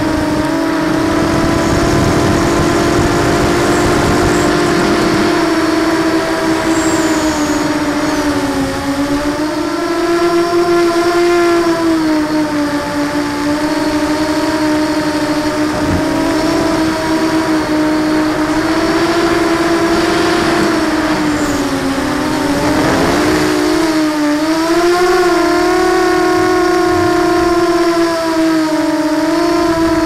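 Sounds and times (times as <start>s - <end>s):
quadcopter propellers whining: 0.0s - 30.0s.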